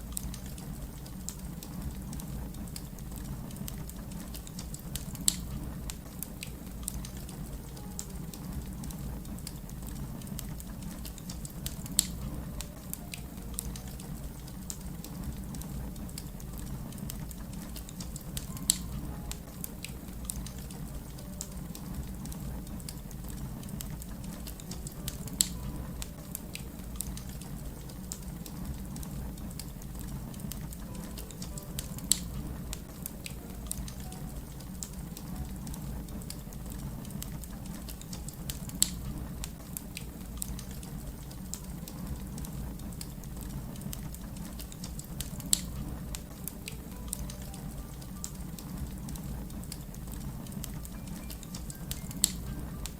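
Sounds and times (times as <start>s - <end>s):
wood fire crackling: 0.0s - 52.9s
loud fire pops: 0.2s - 7.6s.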